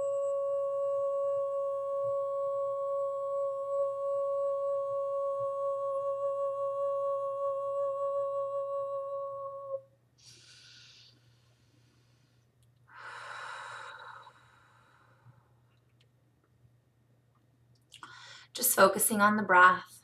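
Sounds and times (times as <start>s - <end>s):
woman humming high note: 0.0s - 9.8s
woman breathing in: 10.2s - 15.5s, 18.0s - 18.6s.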